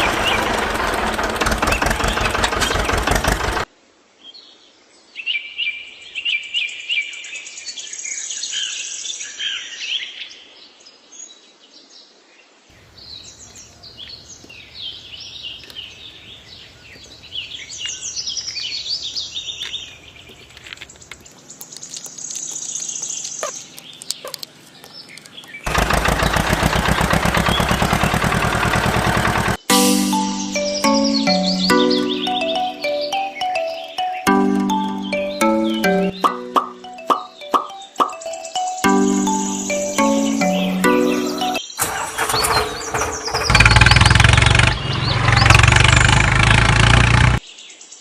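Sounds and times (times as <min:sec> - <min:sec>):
birds chirping and trilling: 0:00.0 - 0:03.6, 0:12.7 - 0:46.7
engine running with rapid beat: 0:00.0 - 0:03.7, 0:25.7 - 0:30.7, 0:38.8 - 0:47.4.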